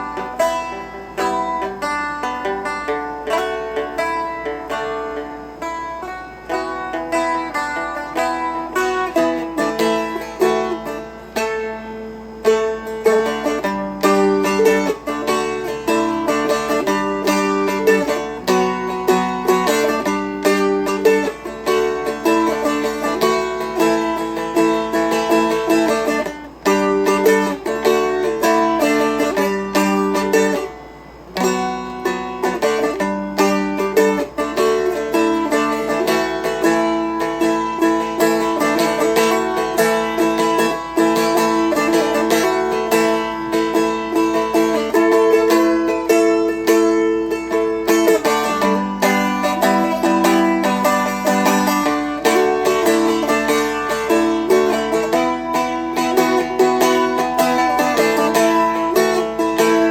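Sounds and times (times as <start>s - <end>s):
strumstick melody: 0.0s - 59.9s.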